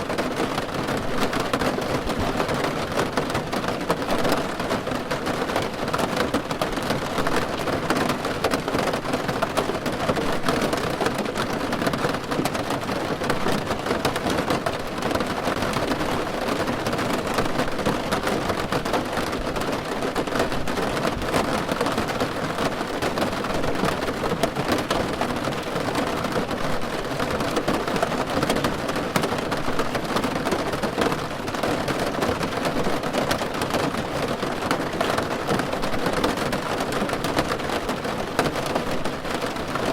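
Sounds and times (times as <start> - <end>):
rain pattering on car roof: 0.0 - 39.9.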